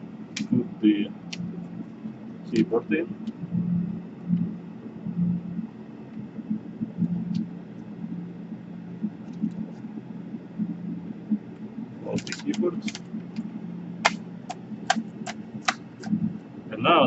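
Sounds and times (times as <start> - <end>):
steady low hum: 0.0 - 17.0
laptop keyboard clicks: 12.2 - 13.0, 14.0 - 16.2.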